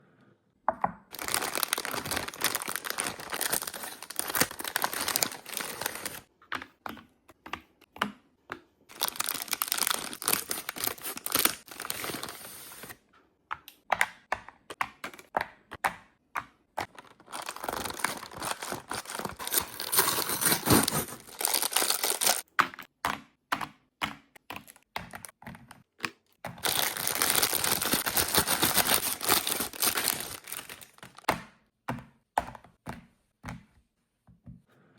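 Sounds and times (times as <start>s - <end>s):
plastic wrappers crinkling and tearing: 1.1s - 6.3s, 8.9s - 12.9s, 16.8s - 22.5s, 26.5s - 31.3s.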